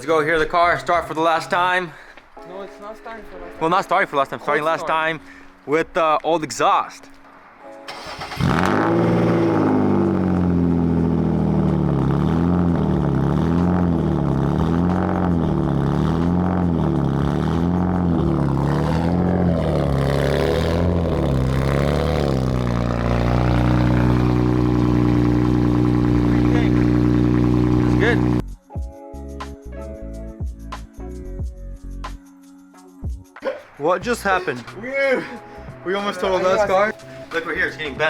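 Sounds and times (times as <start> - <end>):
car engine starting and running: 7.8 - 28.4.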